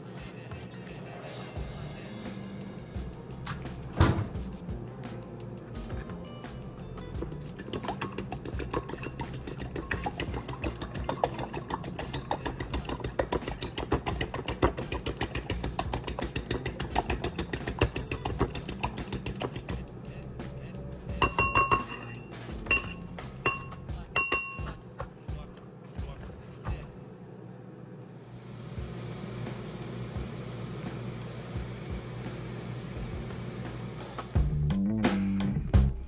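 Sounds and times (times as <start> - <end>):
background music: 0.0 - 26.9, 28.6 - 36.0
dishes clinking: 21.2 - 24.8.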